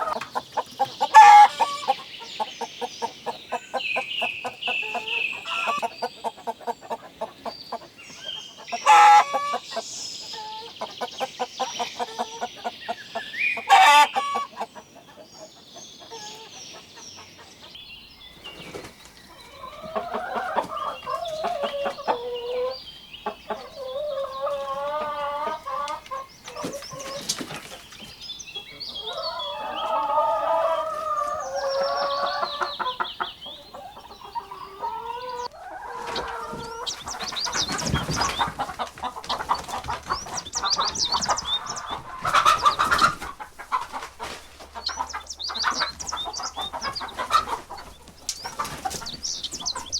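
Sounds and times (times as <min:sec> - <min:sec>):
loud sharp chicken calls: 0:00.0 - 0:15.2, 0:18.6 - 0:27.8, 0:28.6 - 0:49.9
chickens clucking: 0:00.0 - 0:49.9
rooster crowing: 0:29.0 - 0:31.0.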